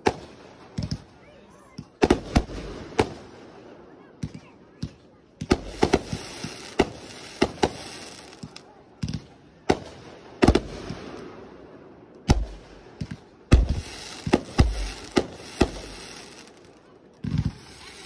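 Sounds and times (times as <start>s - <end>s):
fireworks bangs: 1.8s - 3.6s, 4.2s - 11.4s, 12.2s - 18.0s
fireworks crackling hiss: 5.4s - 8.7s, 12.3s - 18.0s
deep fireworks booms: 12.2s - 16.6s.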